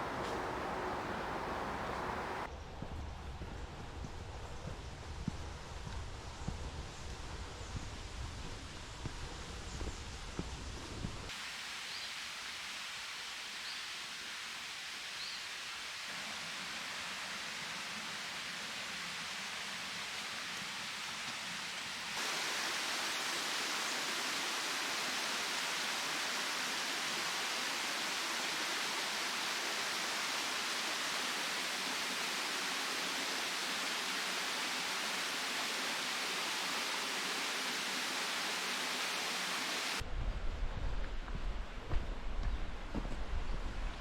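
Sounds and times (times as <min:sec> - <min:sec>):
stream water rushing: 0:00.0 - 0:02.5, 0:22.2 - 0:40.0
wind buffeting microphone: 0:00.0 - 0:02.5.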